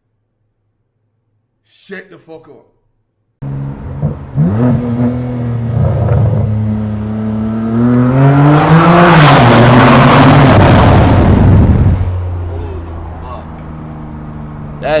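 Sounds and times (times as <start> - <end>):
car exhaust revving: 3.4 - 15.0.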